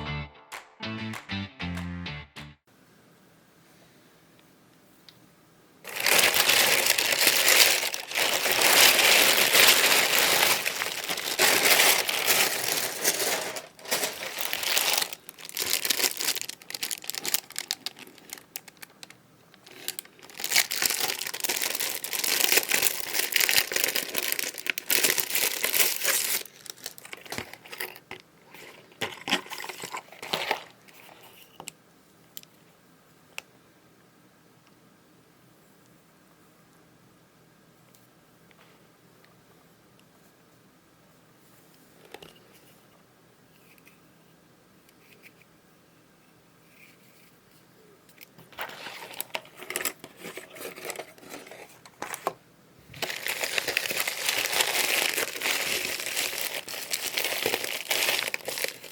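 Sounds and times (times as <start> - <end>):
packaging crinkling: 5.9 - 30.8, 48.5 - 52.3, 52.9 - 58.9.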